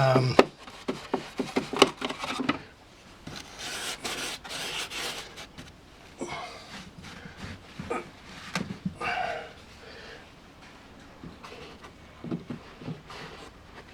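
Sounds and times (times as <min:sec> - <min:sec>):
fingers crackling and tapping paper: 0:00.2 - 0:02.6
fingers rubbing paper on foam: 0:03.3 - 0:05.8.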